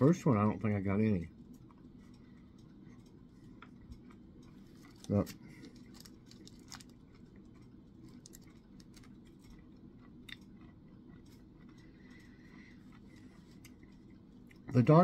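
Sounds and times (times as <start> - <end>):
faint chewing: 1.2 - 15.0.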